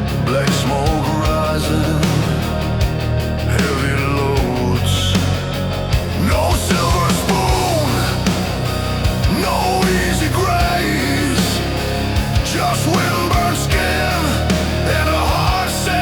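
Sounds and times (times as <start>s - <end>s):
bass: 0.0s - 16.0s.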